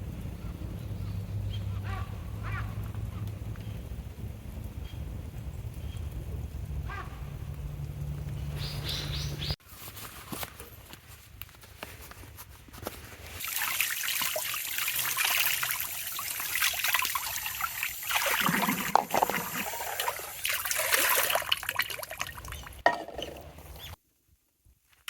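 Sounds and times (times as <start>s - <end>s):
water trickling: 13.4s - 24.0s.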